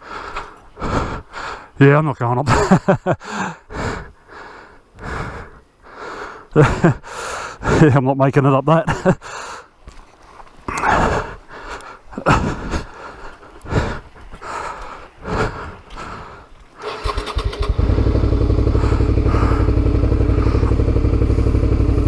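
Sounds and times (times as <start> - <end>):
motorcycle engine idling: 16.8 - 22.0.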